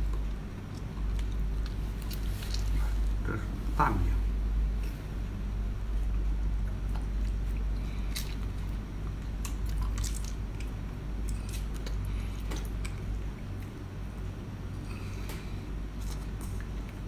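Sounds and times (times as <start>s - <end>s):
person chewing seafood: 0.0s - 3.4s, 6.6s - 13.7s
steady low hum: 0.0s - 17.0s.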